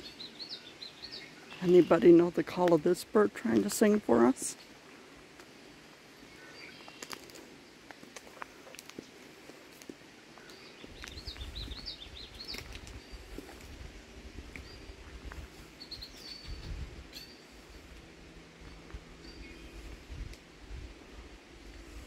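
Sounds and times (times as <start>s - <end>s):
small songbird singing: 0.0s - 2.4s, 6.3s - 7.2s, 10.4s - 13.6s, 14.6s - 17.6s.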